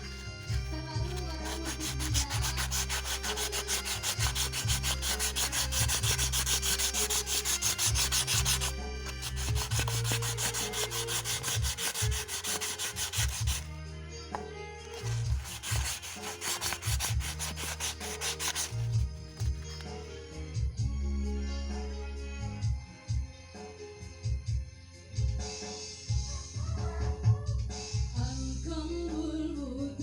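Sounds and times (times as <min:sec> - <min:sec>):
hand sanding metal: 0:00.0 - 0:13.7, 0:14.9 - 0:20.0.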